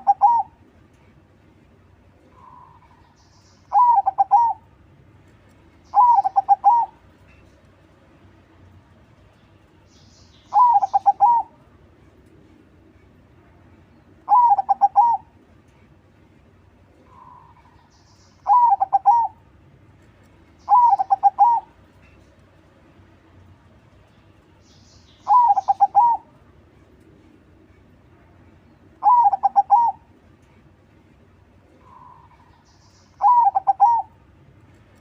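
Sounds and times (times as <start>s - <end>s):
dove cooing: 0.0s - 0.6s, 3.7s - 4.6s, 5.9s - 7.0s, 10.5s - 11.6s, 14.3s - 15.3s, 18.4s - 19.4s, 20.7s - 21.8s, 25.3s - 26.4s, 29.0s - 30.1s, 33.2s - 34.2s.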